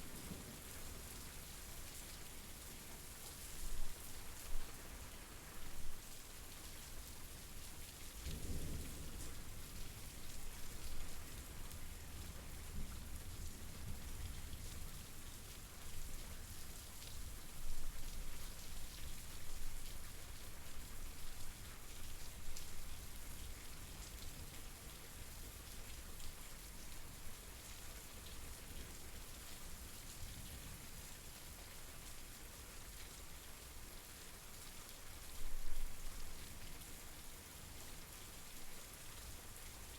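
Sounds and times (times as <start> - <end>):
steady rain falling: 0.0 - 39.9
low rumble of thunder: 8.2 - 14.5.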